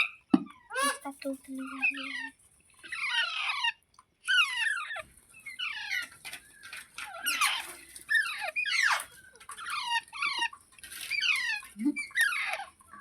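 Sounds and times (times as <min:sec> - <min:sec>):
parakeet squeaky calls: 0:00.0 - 0:12.8.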